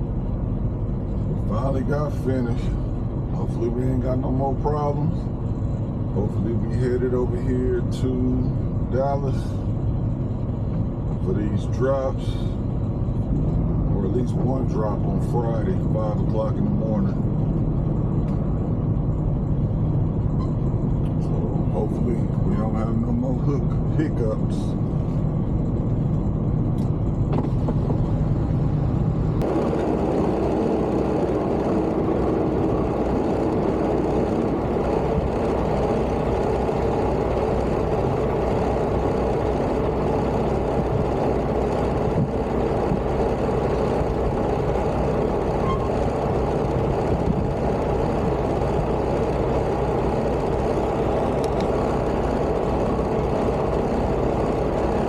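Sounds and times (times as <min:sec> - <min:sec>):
road and wind noise: 0:00.0 - 0:55.0
truck engine drone: 0:00.0 - 0:55.0.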